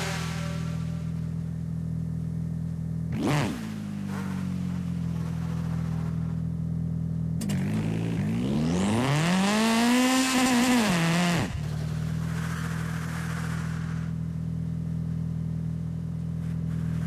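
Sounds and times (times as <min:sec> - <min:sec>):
video game car engine revving: 0:03.1 - 0:06.4, 0:07.4 - 0:14.1.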